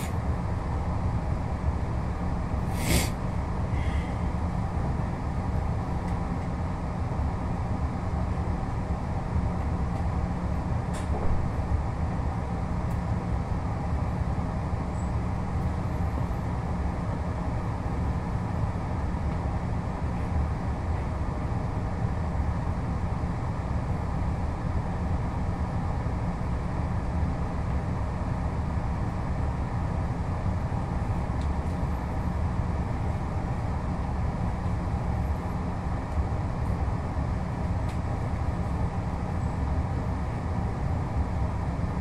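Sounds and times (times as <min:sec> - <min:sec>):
train carriage rumble: 0:00.0 - 0:42.0.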